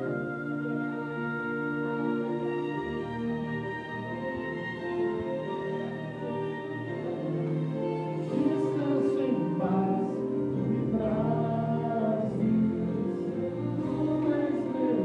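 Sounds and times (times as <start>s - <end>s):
choir singing sustained notes: 0.0s - 15.0s
instrumental accompaniment: 0.0s - 15.0s.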